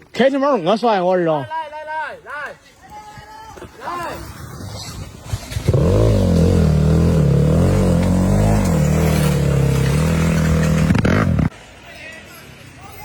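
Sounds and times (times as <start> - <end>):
off-road motorcycle engine revving: 5.2 - 11.5.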